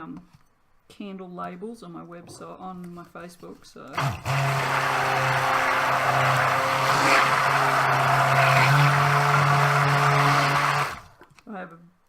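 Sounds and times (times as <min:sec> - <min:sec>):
stick blender motor running: 0:03.9 - 0:11.2.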